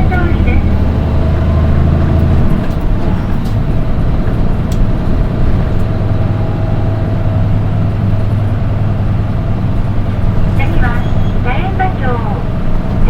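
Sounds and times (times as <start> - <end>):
thin high engine tone: 0.0 - 2.6, 5.9 - 13.0
bus diesel engine drone: 0.0 - 13.0.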